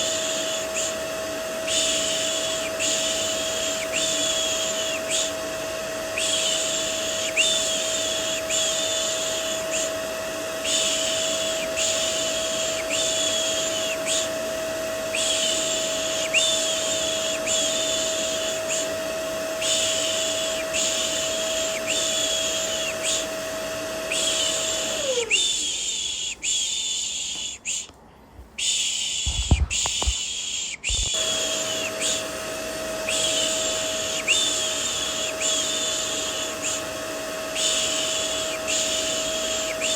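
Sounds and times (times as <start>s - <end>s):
vacuum cleaner motor whine: 0.0s - 27.9s, 28.6s - 39.9s.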